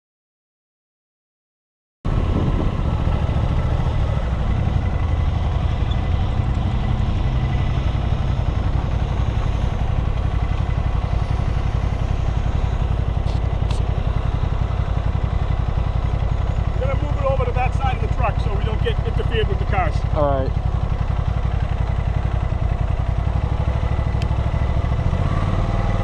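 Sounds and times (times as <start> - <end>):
motorcycle engine rumbling: 2.1 - 26.0.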